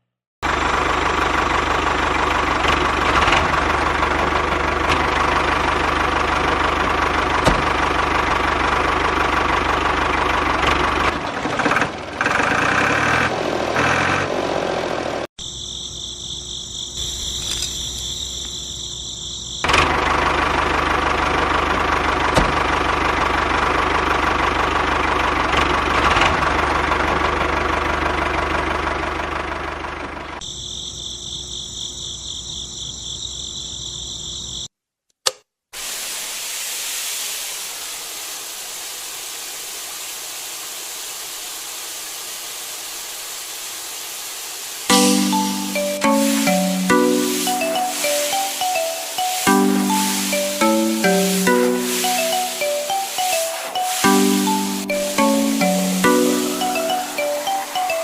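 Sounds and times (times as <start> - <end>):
high pulsing chirring: 44.9 - 58.0.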